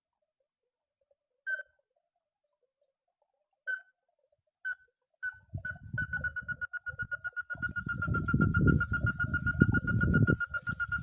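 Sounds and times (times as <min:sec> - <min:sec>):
bird piping notes: 0:04.7 - 0:11.0.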